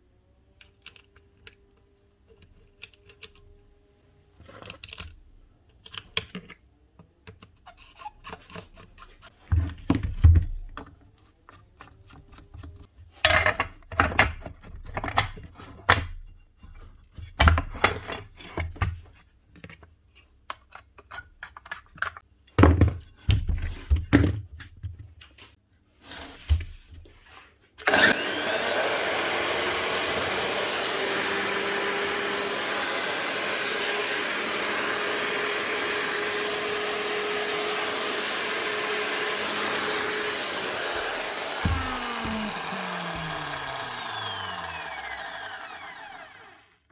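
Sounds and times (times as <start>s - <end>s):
angle grinder spinning: 27.8s - 46.8s.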